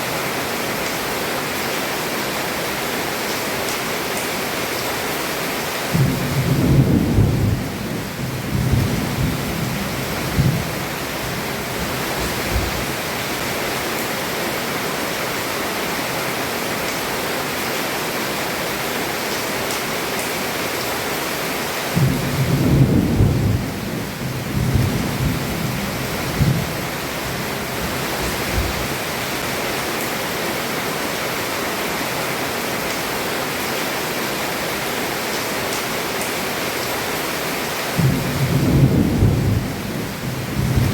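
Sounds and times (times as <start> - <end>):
heavy rain on roof: 0.0 - 40.9
thunder rumbling: 5.9 - 13.0, 21.9 - 29.0, 38.0 - 40.9.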